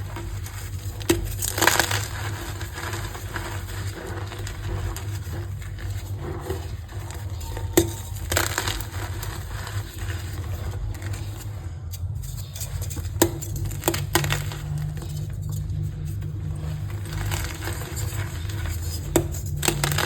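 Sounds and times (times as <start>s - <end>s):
chalk block crushed crackling: 0.0s - 20.0s
low hum: 0.0s - 20.0s.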